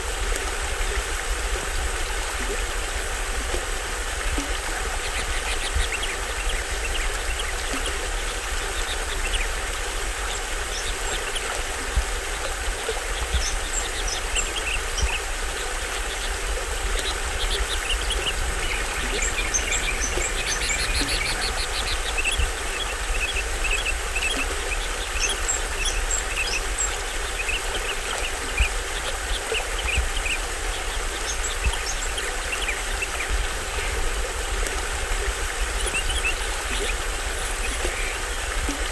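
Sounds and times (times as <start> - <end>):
small waterfall rushing: 0.0 - 38.9
birds chirping: 13.2 - 30.3
bird trilling: 17.4 - 22.5.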